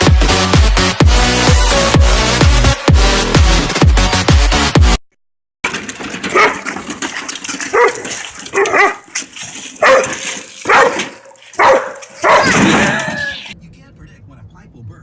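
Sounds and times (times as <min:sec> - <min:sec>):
electronic dance music: 0:00.0 - 0:05.0
dog barking: 0:06.3 - 0:06.6, 0:07.7 - 0:09.1, 0:09.8 - 0:12.6.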